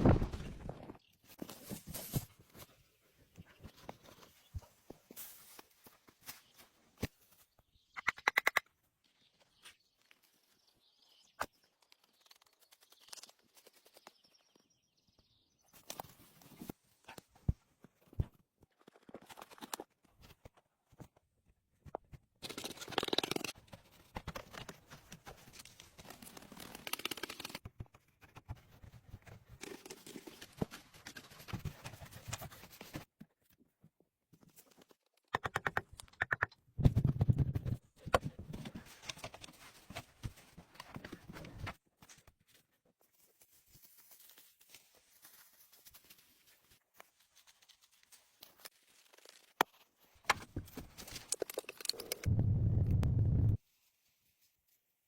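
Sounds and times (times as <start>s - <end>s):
rustling and scraping: 0.0s - 6.9s.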